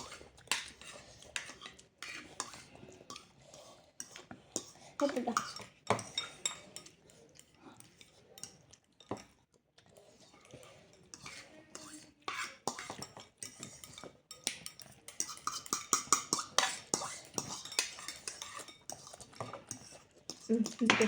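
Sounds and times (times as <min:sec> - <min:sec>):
utensils clinking on plates: 0:04.0 - 0:07.0, 0:10.9 - 0:21.0.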